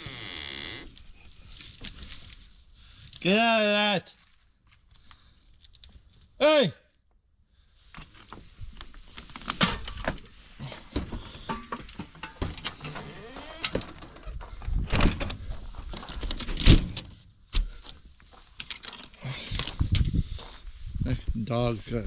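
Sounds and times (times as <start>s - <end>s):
rustling of handled objects: 0.9s - 3.3s, 4.1s - 6.4s, 7.7s - 13.0s, 13.8s - 20.9s
objects knocking and clattering: 10.9s - 13.0s.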